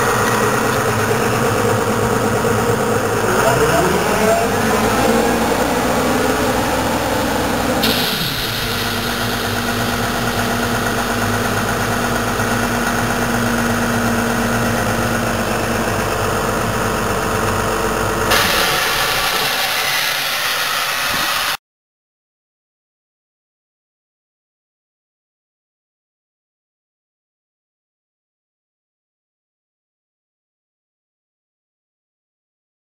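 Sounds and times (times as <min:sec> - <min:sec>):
diesel compressor engine running: 0:00.0 - 0:21.6
steady hiss: 0:07.8 - 0:11.8.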